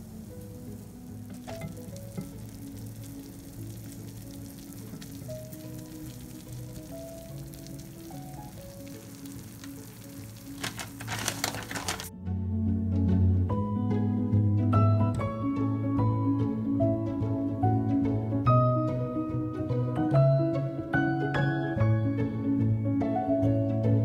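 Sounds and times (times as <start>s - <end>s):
cheese sizzling in a pan: 0.0s - 12.1s
soft background music: 0.0s - 24.0s.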